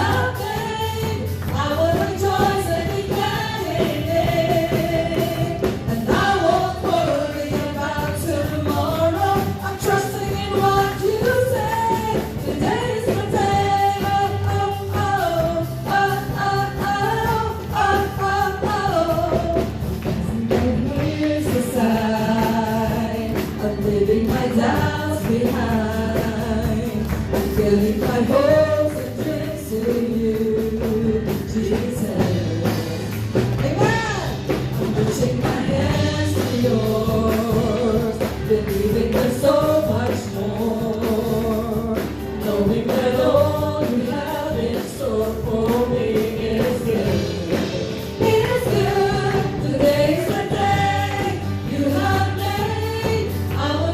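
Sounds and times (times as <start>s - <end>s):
voices singing a melody: 0.0s - 53.9s
worship band playing: 0.0s - 53.9s.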